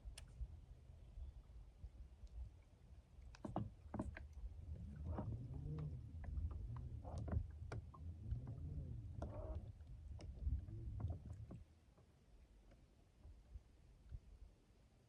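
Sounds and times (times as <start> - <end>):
boat creaking: 3.3 - 11.7.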